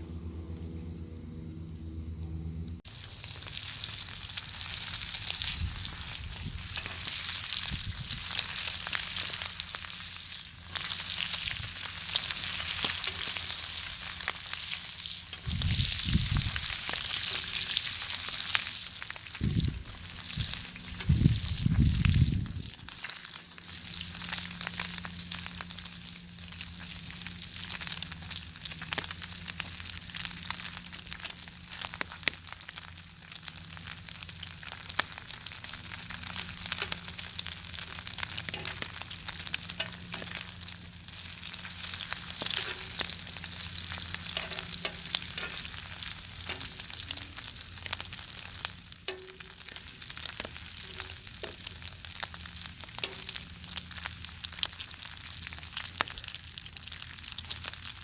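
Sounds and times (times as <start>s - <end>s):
faint low hum: 0.0s - 2.8s
fire crackling: 0.2s - 58.0s
bacon sizzling and spattering: 2.8s - 58.0s.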